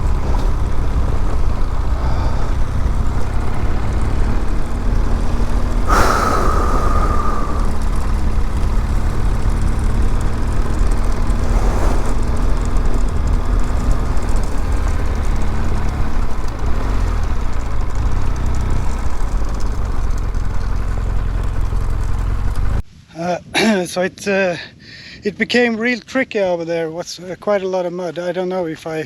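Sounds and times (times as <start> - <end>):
motorcycle engine running: 0.0 - 22.8
wind and road noise: 0.0 - 23.1.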